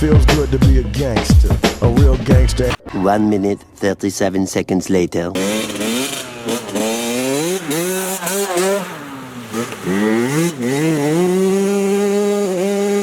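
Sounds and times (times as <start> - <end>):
dirt bike engine revving: 5.4 - 13.0.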